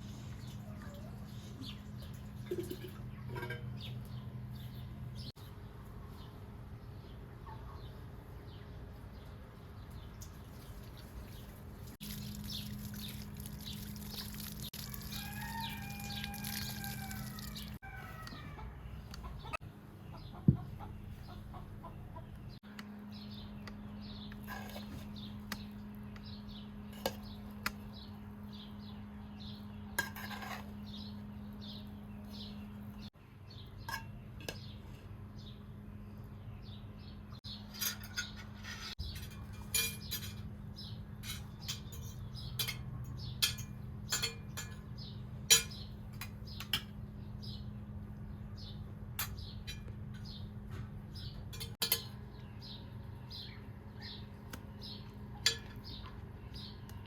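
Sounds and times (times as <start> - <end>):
cooking utensils and dishes clinking: 2.4 - 4.0, 30.0 - 30.8, 37.6 - 40.5, 41.2 - 47.0, 51.4 - 52.2, 55.4 - 56.1
rooster crowing: 14.8 - 18.8.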